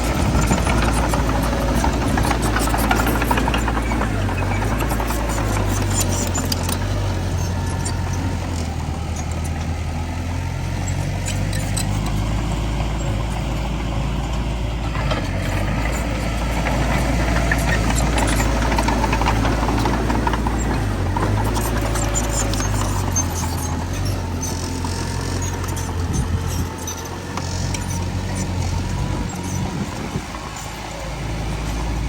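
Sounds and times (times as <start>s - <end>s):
diesel engine running: 0.0s - 32.0s
light clicks and clanks: 10.8s - 31.8s.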